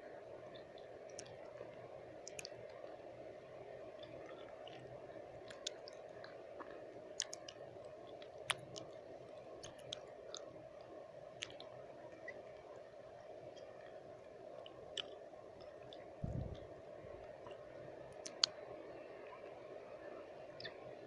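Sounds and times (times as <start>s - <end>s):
low white noise hiss: 0.0s - 21.0s
tongue and lip clicks: 0.6s - 1.6s, 2.2s - 3.0s, 4.0s - 9.0s, 9.6s - 10.5s, 11.4s - 11.8s, 14.6s - 16.7s, 18.1s - 18.6s.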